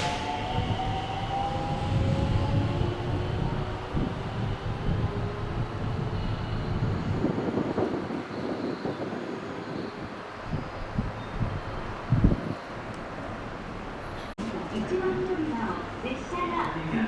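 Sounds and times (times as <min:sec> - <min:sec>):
train wheels rumbling on rails: 0:00.0 - 0:15.7.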